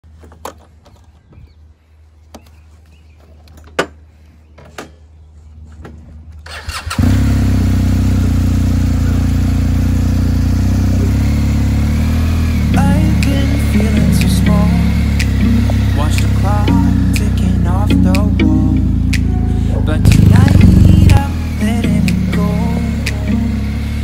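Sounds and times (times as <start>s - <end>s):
motorcycle engine starting and idling: 6.4s - 24.0s
low hum: 7.1s - 24.0s.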